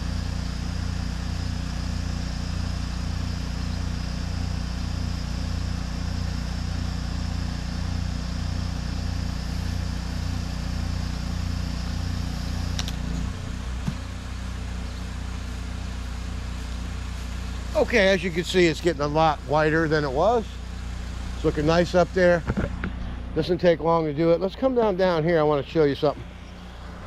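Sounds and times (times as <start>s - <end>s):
pressure washer engine running: 0.0s - 27.0s
constant hiss: 9.2s - 27.0s
click: 12.7s - 13.0s.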